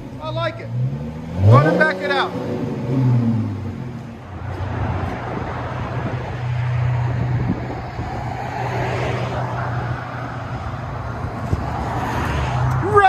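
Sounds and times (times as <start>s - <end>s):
car exhaust drone: 0.0s - 13.0s.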